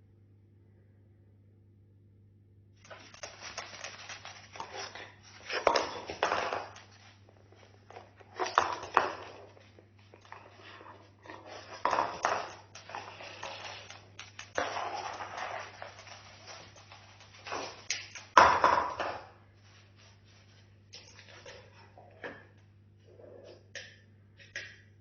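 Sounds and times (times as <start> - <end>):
cockatoo chewing and crunching: 2.8 - 18.8.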